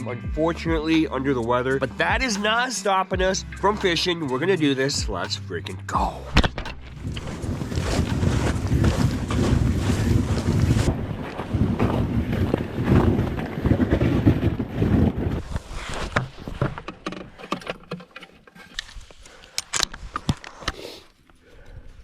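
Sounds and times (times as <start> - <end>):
wind buffeting the microphone: 6.4 - 16.6.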